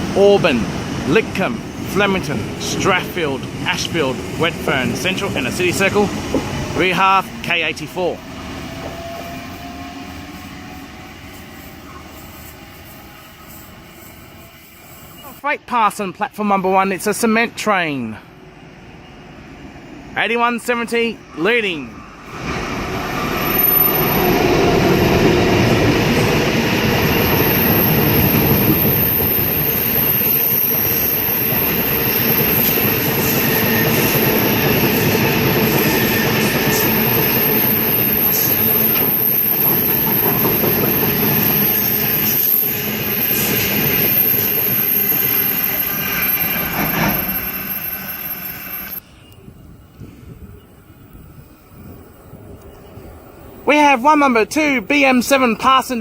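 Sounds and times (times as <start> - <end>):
freight train wagons rumbling: 0.0 - 18.3, 20.0 - 49.2
thin high whine: 35.9 - 49.4.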